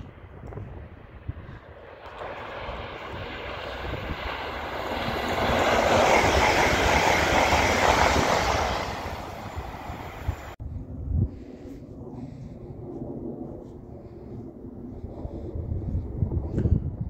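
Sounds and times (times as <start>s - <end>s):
train passing at speed: 1.8s - 10.6s.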